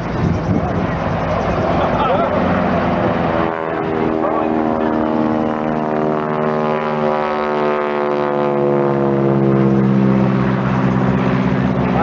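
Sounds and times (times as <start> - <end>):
propeller airplane engine drone: 0.0 - 12.0.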